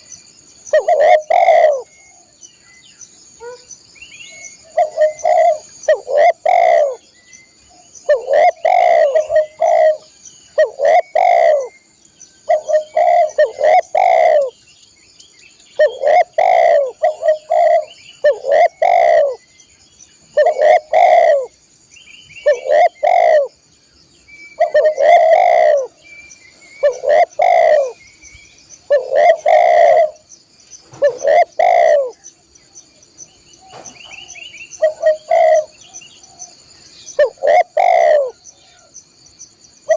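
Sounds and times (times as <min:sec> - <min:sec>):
dove cooing: 0:00.7 - 0:02.4, 0:04.5 - 0:07.1, 0:07.8 - 0:11.8, 0:12.4 - 0:14.6, 0:15.8 - 0:19.4, 0:20.3 - 0:21.6, 0:22.4 - 0:23.6, 0:24.5 - 0:26.0, 0:26.8 - 0:28.0, 0:28.9 - 0:30.2, 0:30.9 - 0:32.2, 0:33.6 - 0:36.5, 0:37.2 - 0:38.9.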